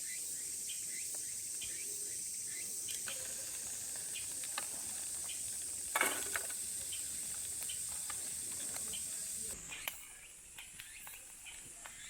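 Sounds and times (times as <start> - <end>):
cicadas droning: 0.0 - 12.0
faint ticks: 2.9 - 10.0.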